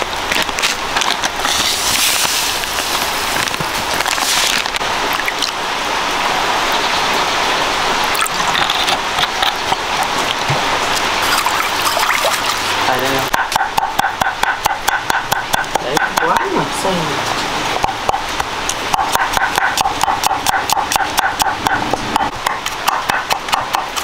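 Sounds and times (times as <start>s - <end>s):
meat frying in hot oil: 0.0s - 8.6s.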